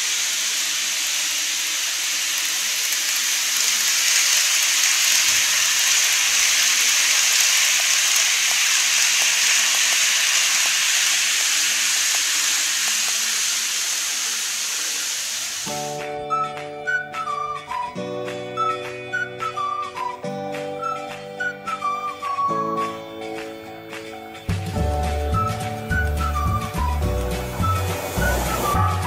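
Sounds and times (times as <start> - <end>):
model train rolling on track: 0.0 - 16.0, 25.1 - 29.0.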